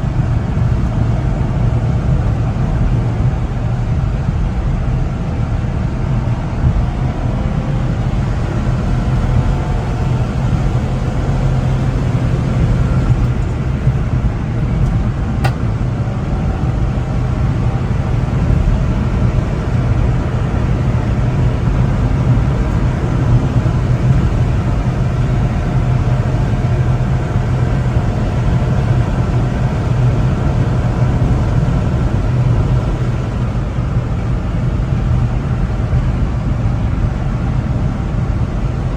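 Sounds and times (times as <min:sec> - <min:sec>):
road noise: 0:00.0 - 0:38.9
small truck engine driving: 0:00.0 - 0:38.9.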